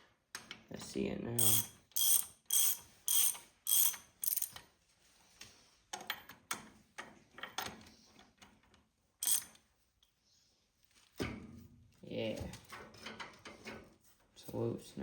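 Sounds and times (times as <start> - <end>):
ratchet wrench clicking: 1.4 - 4.6, 9.2 - 9.5.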